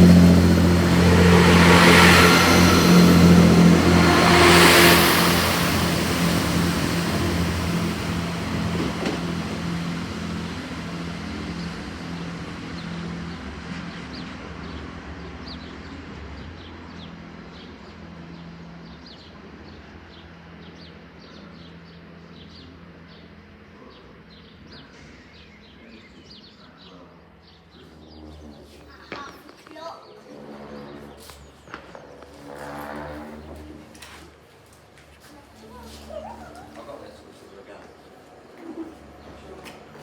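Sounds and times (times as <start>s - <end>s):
diesel train engine humming: 0.0s - 19.3s.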